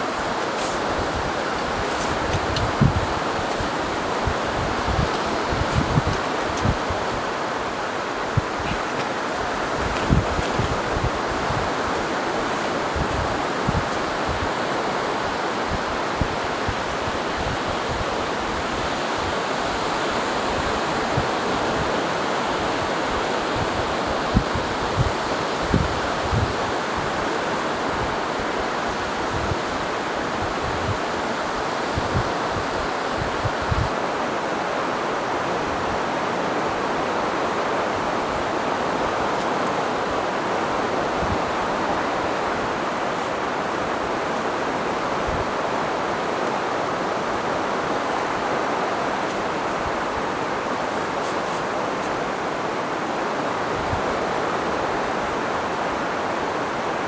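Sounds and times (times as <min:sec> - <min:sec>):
surf breaking on beach: 0:00.0 - 0:17.2
wind buffeting microphone: 0:00.0 - 0:56.4
strong wind: 0:00.0 - 0:57.0.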